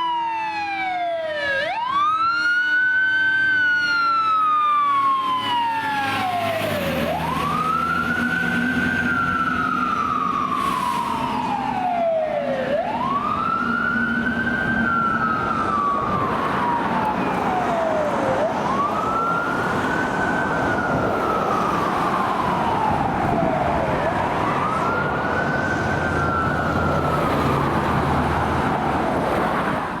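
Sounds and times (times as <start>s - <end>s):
fire engine siren wailing: 0.0s - 30.0s
engine rumble: 12.6s - 30.0s.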